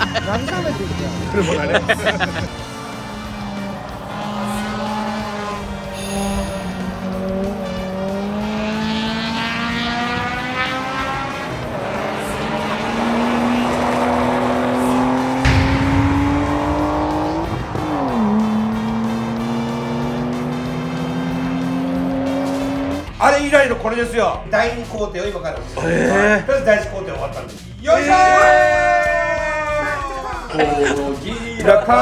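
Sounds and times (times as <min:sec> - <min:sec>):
race car engine accelerating: 0:02.4 - 0:23.1.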